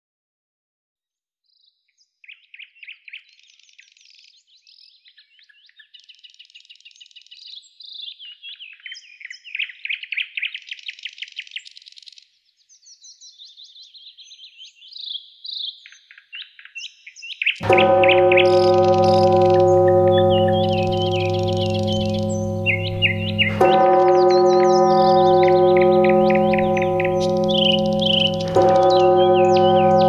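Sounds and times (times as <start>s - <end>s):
songbirds trilling and chirping: 12.5s - 30.0s.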